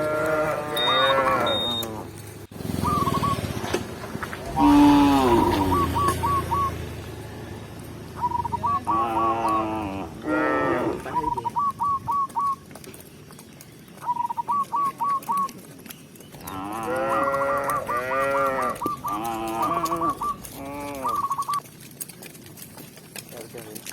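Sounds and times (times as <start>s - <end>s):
cows mooing: 0.0s - 2.9s, 4.4s - 7.7s, 8.7s - 11.5s, 16.4s - 21.6s.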